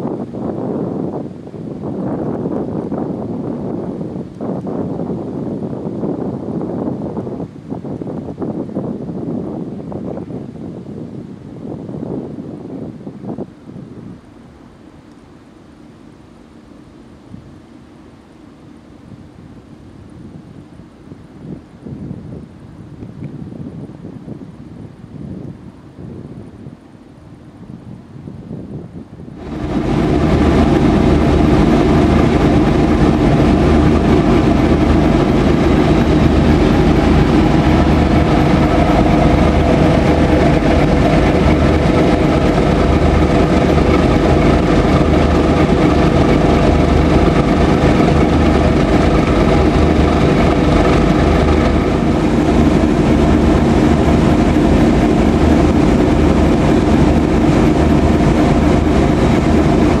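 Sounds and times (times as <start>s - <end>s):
train running close by: 29.3s - 60.0s.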